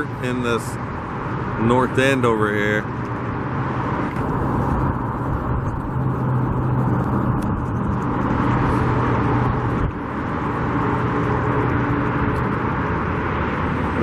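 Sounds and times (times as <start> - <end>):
constant rushing noise: 0.0 - 14.0
vehicle engine hum: 0.0 - 14.0.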